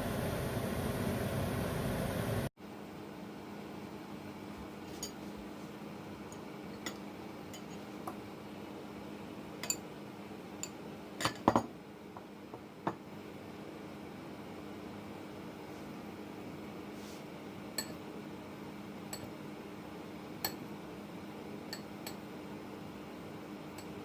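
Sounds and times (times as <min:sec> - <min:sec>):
steady low hum: 0:00.0 - 0:02.5
dishes and utensils clinking: 0:06.8 - 0:07.9, 0:09.6 - 0:09.8, 0:11.2 - 0:11.7.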